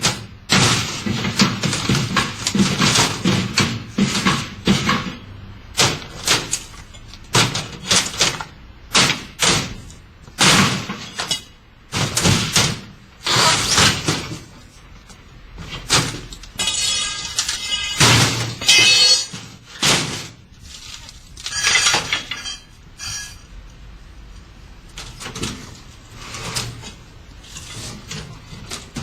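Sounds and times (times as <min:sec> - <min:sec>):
ringing metal clatter: 0:16.6 - 0:19.6, 0:21.4 - 0:23.5.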